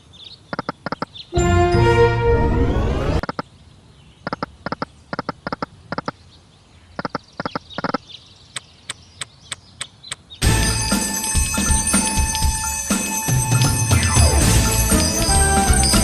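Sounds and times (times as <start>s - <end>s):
jingly game music: 0.8s - 3.4s, 10.4s - 16.0s.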